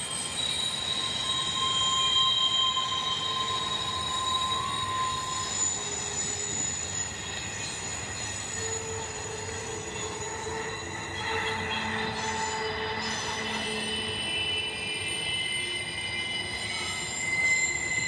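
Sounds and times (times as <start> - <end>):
wheels squealing: 0.0 - 18.0
freight train cars rolling: 0.1 - 18.0.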